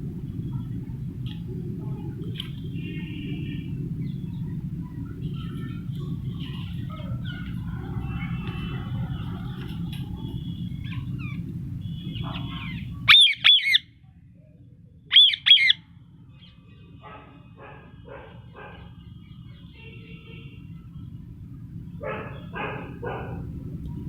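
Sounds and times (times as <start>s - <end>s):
low background hum: 0.0s - 24.0s
parrot chirps and calls: 12.0s - 13.9s, 15.1s - 15.8s
parrot squawking: 12.1s - 13.9s, 15.1s - 15.8s.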